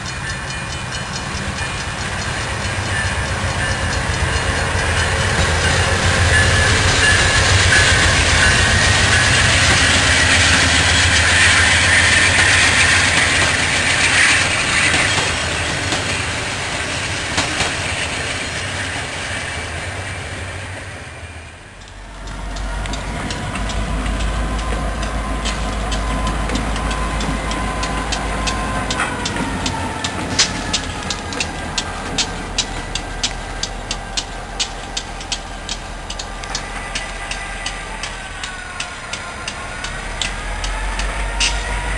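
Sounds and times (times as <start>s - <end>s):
train wheels on rails: 0.0s - 41.9s.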